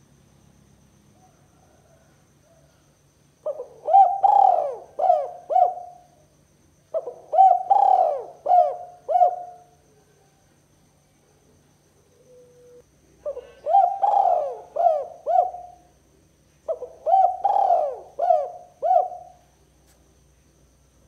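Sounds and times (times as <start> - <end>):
dove cooing: 3.4 - 6.1, 6.9 - 10.3, 12.2 - 15.9, 16.7 - 19.6.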